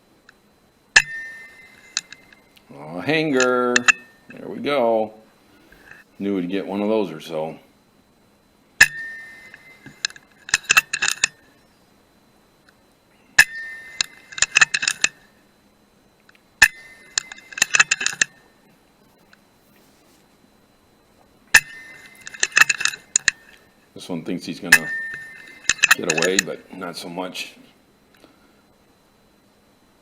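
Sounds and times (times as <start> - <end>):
metallic clicks and clinks: 8.8 - 11.4, 13.4 - 15.2, 16.6 - 18.3, 21.5 - 23.6, 24.7 - 26.6.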